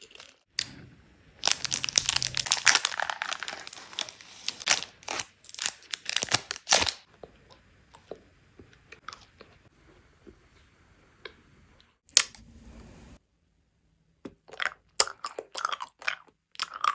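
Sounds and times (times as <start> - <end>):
candy wrapper crinkling: 1.4 - 7.1.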